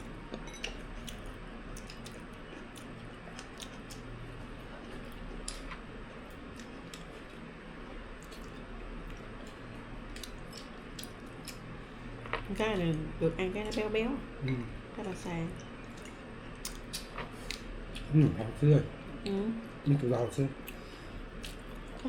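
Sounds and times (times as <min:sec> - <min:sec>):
steady low hum: 0:00.0 - 0:22.0
wet chewing: 0:00.3 - 0:07.4, 0:08.1 - 0:11.7, 0:20.6 - 0:22.0.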